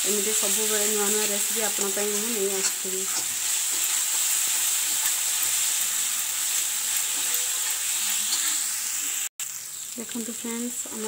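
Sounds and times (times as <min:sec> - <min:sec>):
onions sizzling in hot oil: 0:00.0 - 0:11.0
metal spatula stirring: 0:00.4 - 0:08.7.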